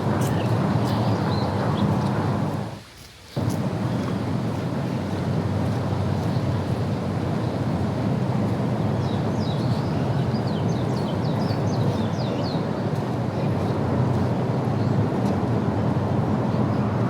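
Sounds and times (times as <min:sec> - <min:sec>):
low rushing noise: 0:00.0 - 0:02.8.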